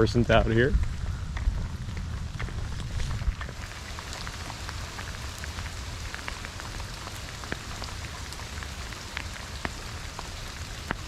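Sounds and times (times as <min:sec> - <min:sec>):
low rumble: 0:00.0 - 0:05.8
heavy rain pouring: 0:00.0 - 0:11.0
raindrops ticking: 0:00.0 - 0:11.0.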